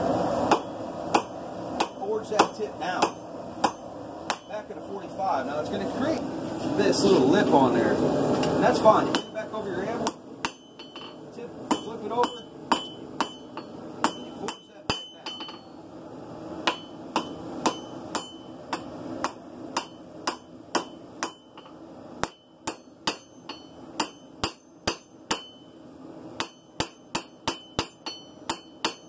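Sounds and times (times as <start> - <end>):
hammer striking steel on anvil: 0.5 - 4.6, 9.1 - 15.8, 16.6 - 25.8, 26.4 - 29.0.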